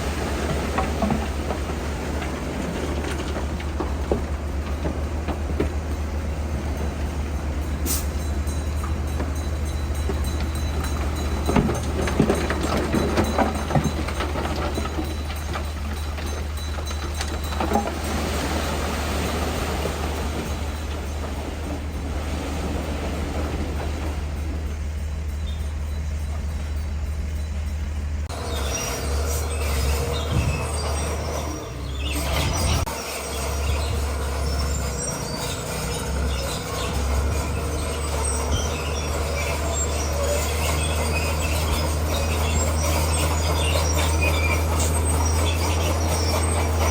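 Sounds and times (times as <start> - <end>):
irregular clanks and knocks: 0.0 - 46.9
low diesel engine drone: 0.0 - 46.9.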